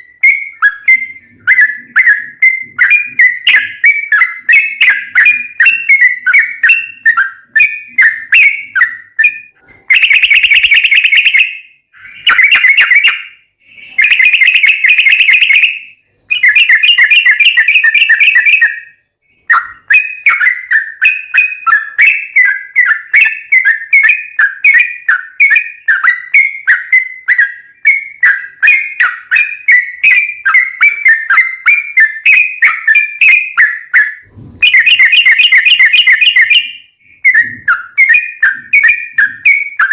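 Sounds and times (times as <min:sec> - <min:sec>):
bird chirping: 0:00.0 - 0:39.9
bird fast trills: 0:19.5 - 0:39.9.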